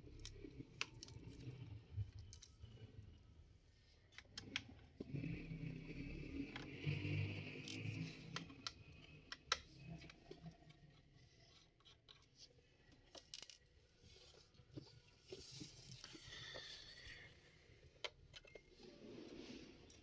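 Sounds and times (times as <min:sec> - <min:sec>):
small clicks and taps of parts: 0:12.9 - 0:13.6.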